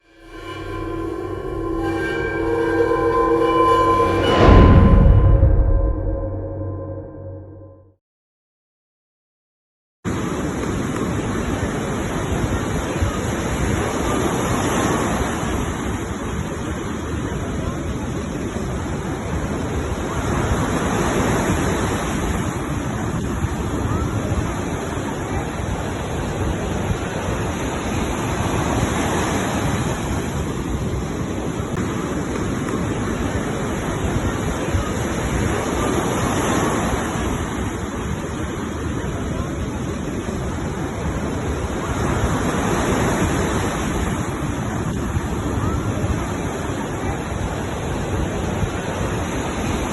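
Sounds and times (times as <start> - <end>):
sea waves: 10.1 - 49.9
wind buffeting the microphone: 10.7 - 49.9.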